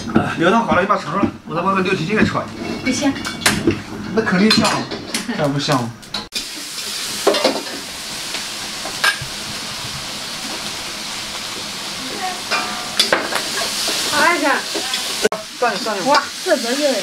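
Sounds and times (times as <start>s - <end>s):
food sizzling in a wok: 5.0s - 17.0s.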